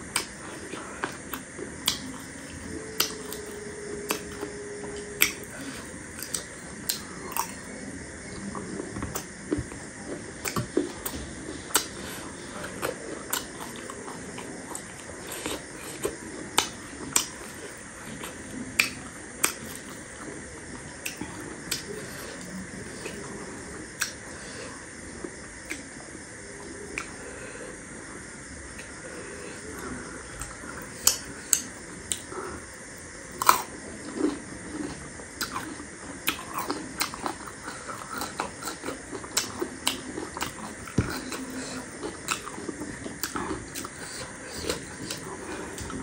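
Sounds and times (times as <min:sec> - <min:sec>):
crunchy chewing: 0:00.0 - 0:46.0.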